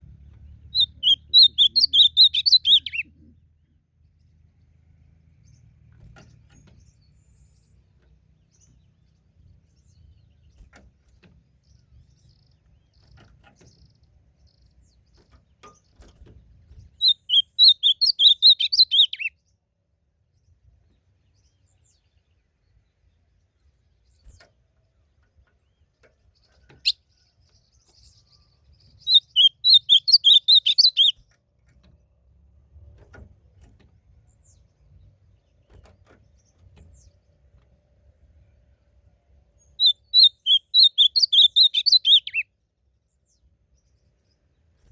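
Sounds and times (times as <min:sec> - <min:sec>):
bird singing warbled phrases: 0:00.0 - 0:04.7, 0:05.4 - 0:19.6, 0:21.2 - 0:31.4, 0:39.6 - 0:44.9.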